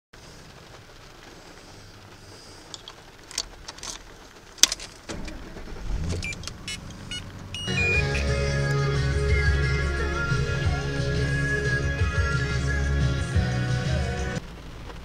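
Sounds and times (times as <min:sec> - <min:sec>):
low engine rumble: 0:00.2 - 0:15.0
clicks and knocks inside vehicle: 0:02.7 - 0:07.6
loud music: 0:07.6 - 0:14.4.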